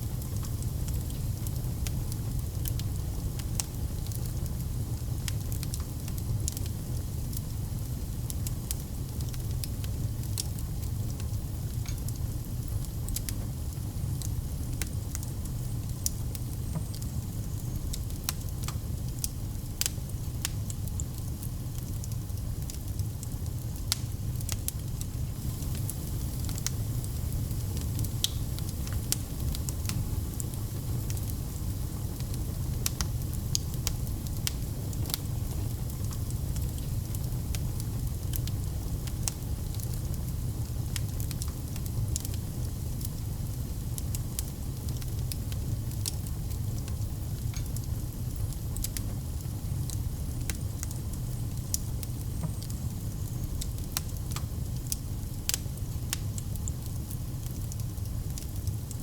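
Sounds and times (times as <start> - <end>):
fire crackling: 0.0 - 59.0
low rumble of flames: 0.0 - 59.0
sharp pops and snaps: 27.8 - 31.2.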